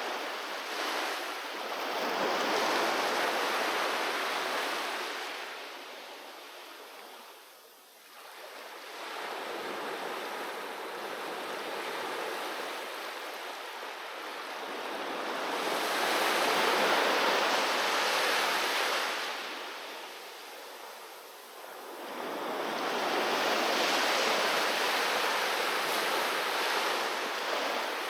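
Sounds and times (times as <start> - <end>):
sea waves washing onto beach: 8.1 - 28.0.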